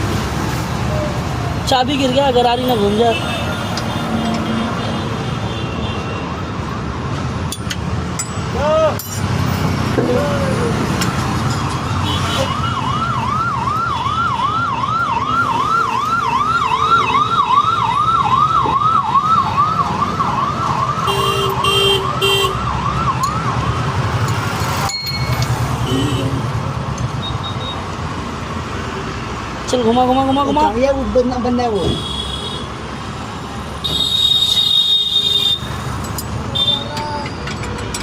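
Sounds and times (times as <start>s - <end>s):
low traffic rumble: 0.0s - 38.0s
electronic siren yelping: 12.4s - 24.2s.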